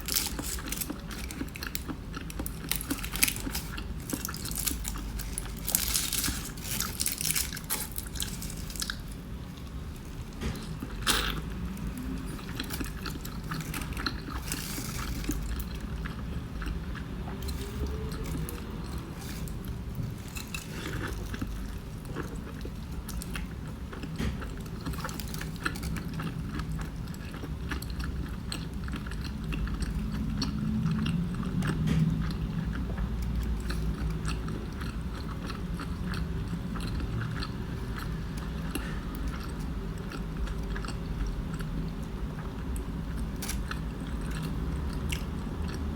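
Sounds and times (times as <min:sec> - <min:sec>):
tortilla wrap crackling: 0:00.0 - 0:10.3
soft wet chewing: 0:00.0 - 0:45.9.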